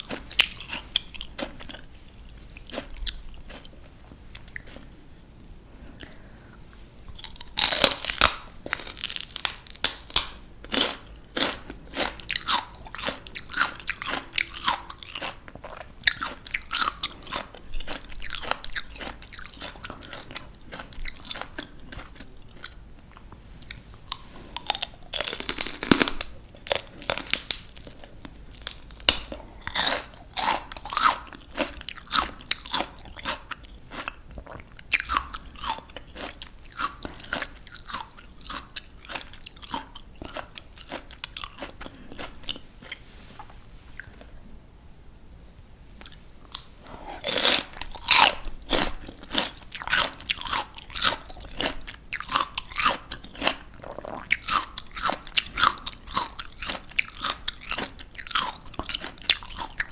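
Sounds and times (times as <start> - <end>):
biting crisp vegetables: 0.0 - 4.9, 7.0 - 43.0, 45.9 - 59.9
crunchy chewing: 0.0 - 6.3, 7.0 - 44.4, 45.9 - 59.9.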